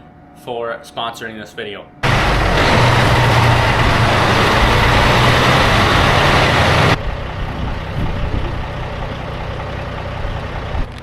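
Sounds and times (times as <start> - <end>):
loud rushing noise: 2.0 - 7.0
diesel engine running: 2.0 - 11.0.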